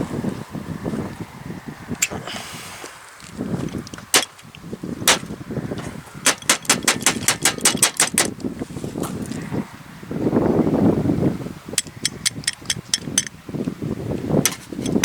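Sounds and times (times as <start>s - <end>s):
sharp clicks: 6.2s - 8.5s.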